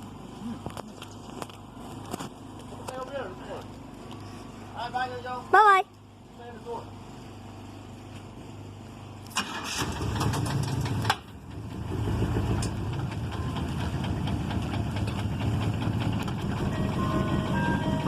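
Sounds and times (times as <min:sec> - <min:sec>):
engine idling: 0:00.0 - 0:18.0
engine starter cranking: 0:09.3 - 0:11.6.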